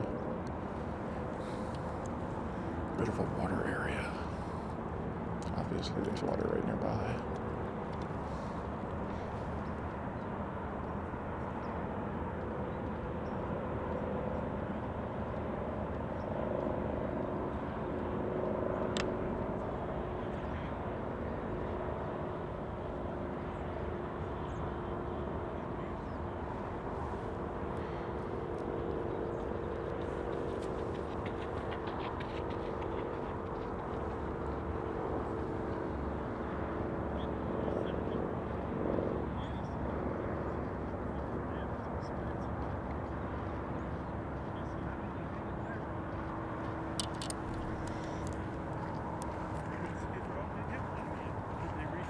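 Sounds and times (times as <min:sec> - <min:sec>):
faint droning hum: 0:00.0 - 0:10.3, 0:23.1 - 0:38.1, 0:39.2 - 0:52.0
sharp click: 0:47.0 - 0:48.4.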